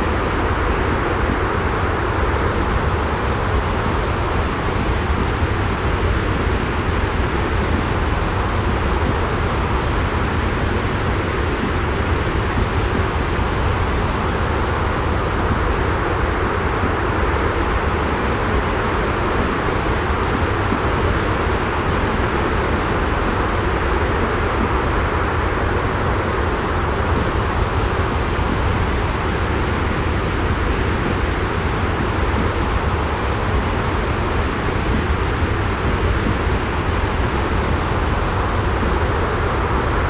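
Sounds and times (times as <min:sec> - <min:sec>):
white noise with low rumble: 0:00.0 - 0:40.0.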